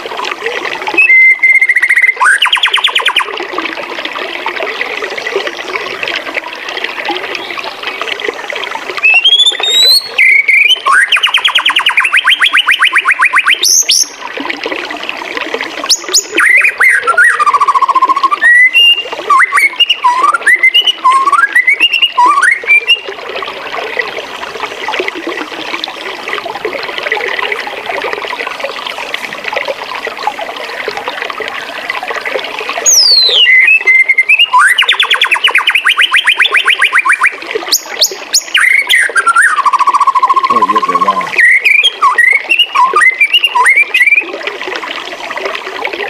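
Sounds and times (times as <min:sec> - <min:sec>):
running water: 0:00.0 - 0:46.0
birds singing whistled notes: 0:01.0 - 0:03.3, 0:09.0 - 0:14.2, 0:15.9 - 0:23.1, 0:32.8 - 0:44.2.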